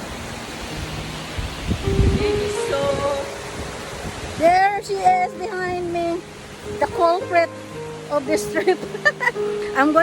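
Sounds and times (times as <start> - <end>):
mountain stream rushing: 0.0 - 10.0
wind buffeting microphone: 0.0 - 10.0.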